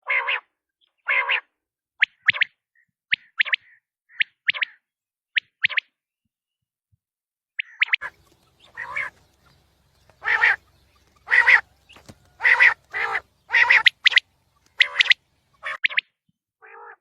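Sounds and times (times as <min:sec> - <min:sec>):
quail rasping calls: 0:07.6 - 0:16.0.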